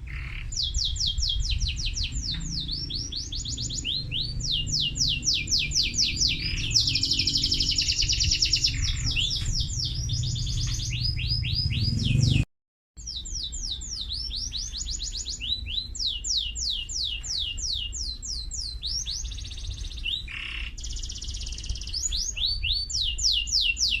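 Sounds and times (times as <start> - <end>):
canary singing: 0.0 - 24.0.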